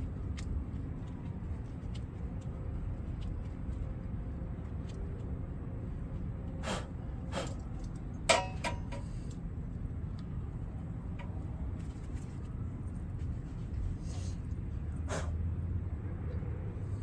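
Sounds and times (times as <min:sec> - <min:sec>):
low background rumble: 0:00.0 - 0:17.0
light knocks of metal tools: 0:07.4 - 0:09.4
sharp metallic clink: 0:08.3 - 0:09.1.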